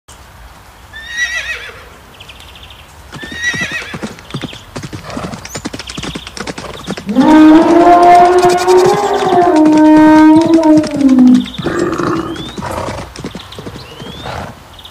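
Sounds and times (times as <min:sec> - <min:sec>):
horse whinnying: 0:01.0 - 0:01.8, 0:03.2 - 0:04.1, 0:07.0 - 0:13.2, 0:13.8 - 0:14.5
hooves galloping: 0:03.1 - 0:14.6
loud low animal call: 0:07.0 - 0:13.1.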